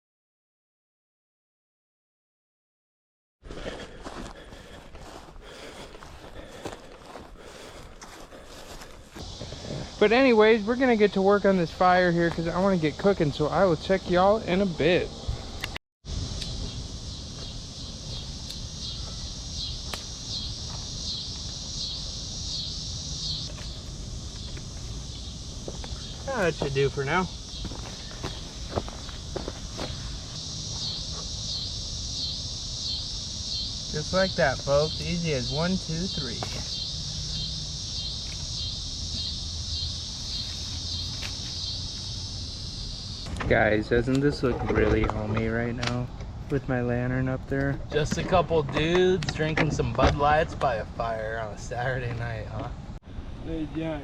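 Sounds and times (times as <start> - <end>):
insects shrilling: 5.0 - 14.7, 16.1 - 44.4.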